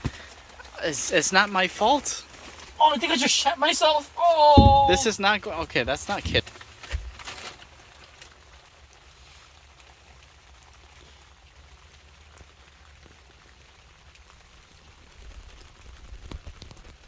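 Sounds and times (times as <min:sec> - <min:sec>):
rain on tent fabric: 0:00.0 - 0:17.0
low knocks: 0:04.5 - 0:06.4.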